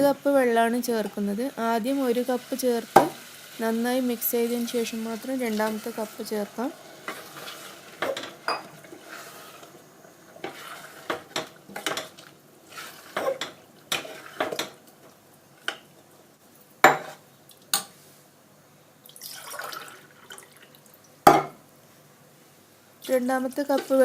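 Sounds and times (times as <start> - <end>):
spoon scraping a cooking pan: 5.6 - 14.8, 23.7 - 24.0.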